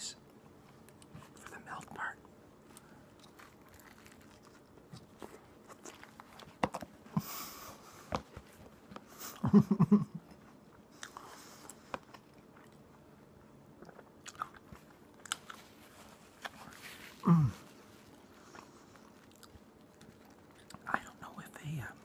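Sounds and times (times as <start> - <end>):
biting and chewing sandwich: 2.7 - 7.0, 10.6 - 20.9.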